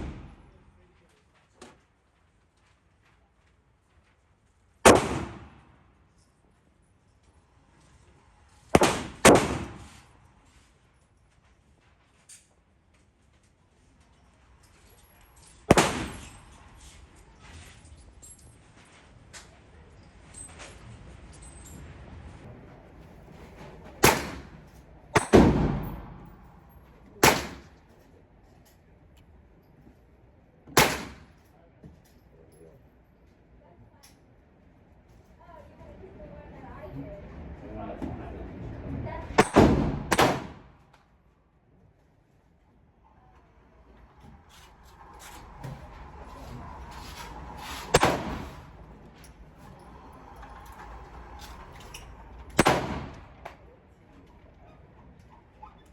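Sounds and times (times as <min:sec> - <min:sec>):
gunshots with echo: 0:00.0 - 0:00.6, 0:04.9 - 0:05.6, 0:08.8 - 0:10.0, 0:15.7 - 0:16.4, 0:24.0 - 0:26.4, 0:27.2 - 0:27.8, 0:30.8 - 0:31.4, 0:39.4 - 0:40.7, 0:47.6 - 0:48.7, 0:52.5 - 0:53.4
low background rumble: 0:00.0 - 0:01.3, 0:13.2 - 0:31.7, 0:33.1 - 0:55.9.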